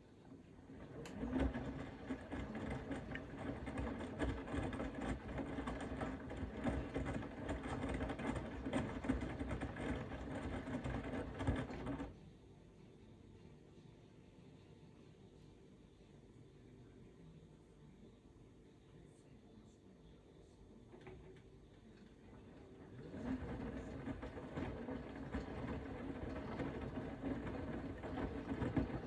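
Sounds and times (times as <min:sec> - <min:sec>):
washing machine motor hum: 0:00.0 - 0:12.2, 0:20.8 - 0:29.0
laundry clattering in drum: 0:00.7 - 0:12.1, 0:22.5 - 0:29.0.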